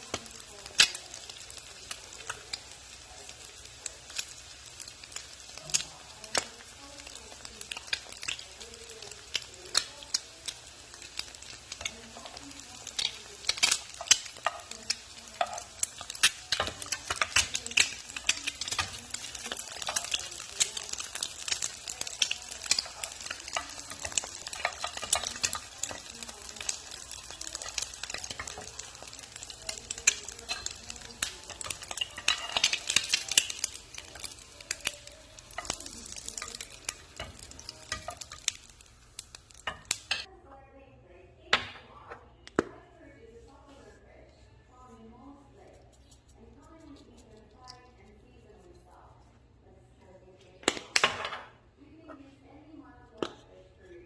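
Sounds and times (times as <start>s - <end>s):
eggs sizzling in hot oil: 0.0s - 40.3s.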